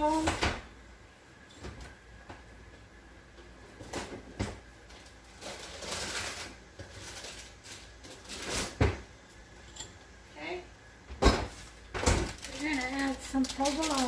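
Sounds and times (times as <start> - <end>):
packaging rustling: 5.0 - 8.8, 12.2 - 14.0.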